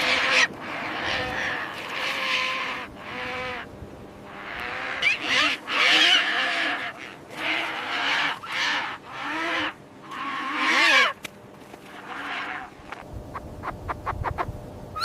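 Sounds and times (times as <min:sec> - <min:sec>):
animal giving harsh calls: 0:00.0 - 0:03.7, 0:04.3 - 0:11.2, 0:11.9 - 0:13.0.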